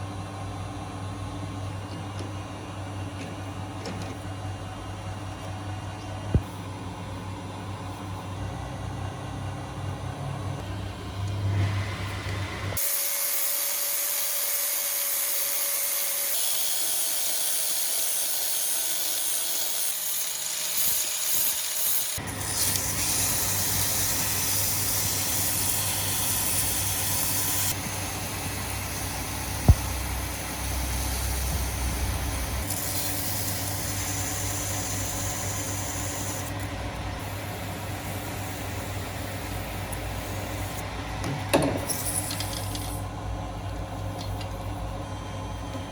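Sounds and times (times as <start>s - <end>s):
power tool humming with hiss: 11.6s - 40.8s.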